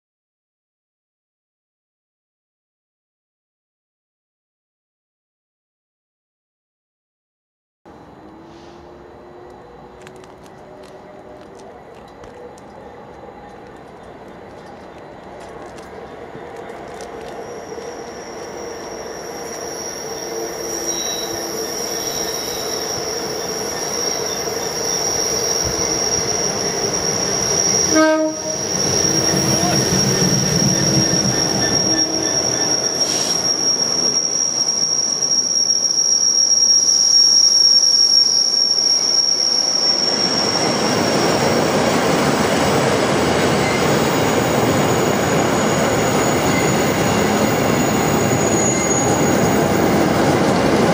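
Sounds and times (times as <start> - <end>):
diesel locomotive engine: 7.9 - 50.9
high-pitched squeal: 16.0 - 50.9.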